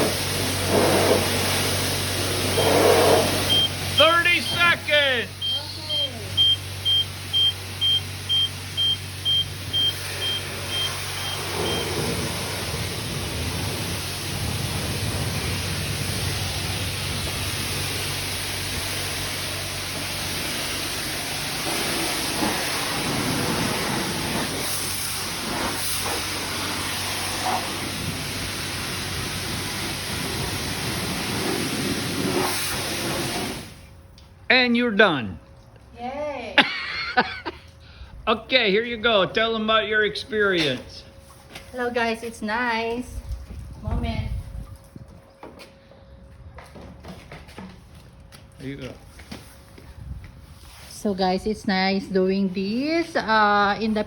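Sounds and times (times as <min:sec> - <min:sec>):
high-pressure spray hissing: 0:00.0 - 0:33.8
timer beeping: 0:03.5 - 0:03.8, 0:05.3 - 0:11.8.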